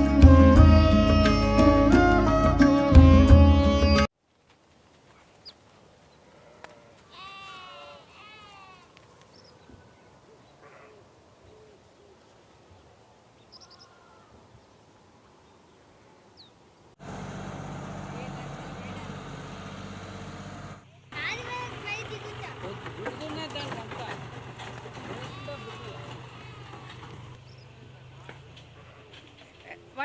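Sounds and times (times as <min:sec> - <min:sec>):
sitar music: 0:00.0 - 0:04.1
outdoor ambience: 0:00.0 - 0:30.0.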